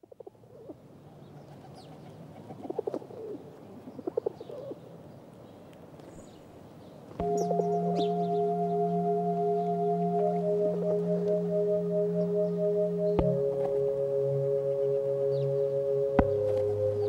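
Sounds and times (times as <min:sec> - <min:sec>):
birds chirping: 0:06.0 - 0:17.0
steady ringing tone: 0:07.2 - 0:17.0.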